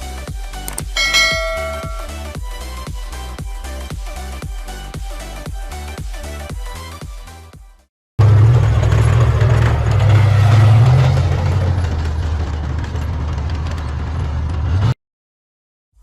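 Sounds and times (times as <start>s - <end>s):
vehicle engine humming: 0.0s - 3.3s, 8.2s - 15.0s.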